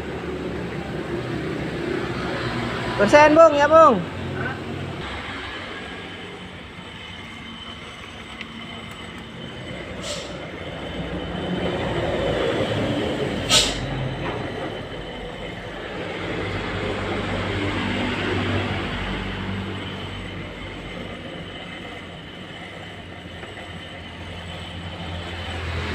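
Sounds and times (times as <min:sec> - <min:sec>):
car engine humming: 0:00.0 - 0:25.9
brief hisses: 0:10.0 - 0:10.4, 0:13.5 - 0:13.9.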